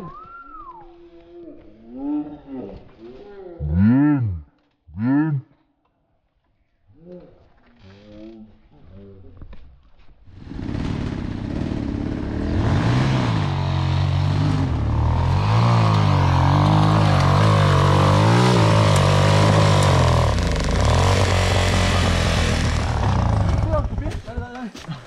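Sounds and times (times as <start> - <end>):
dirt bike engine revving: 10.4 - 24.4.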